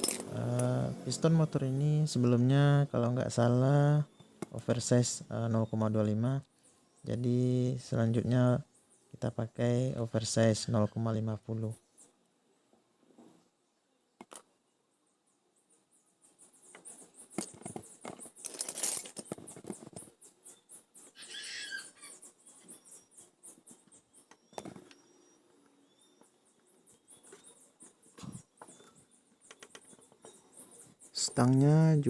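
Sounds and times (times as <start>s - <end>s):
scratchy ticks and rustling: 16.3s - 21.2s.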